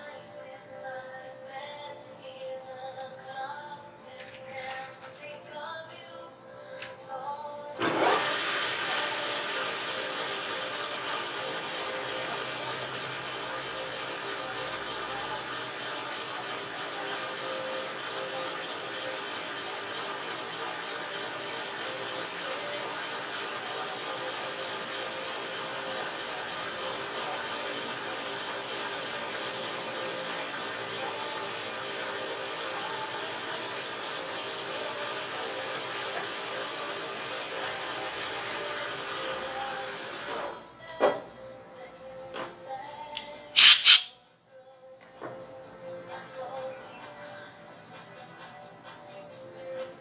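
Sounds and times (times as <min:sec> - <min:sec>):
soft background music: 0:00.0 - 0:16.2
machine motor hissing: 0:43.6 - 0:44.1.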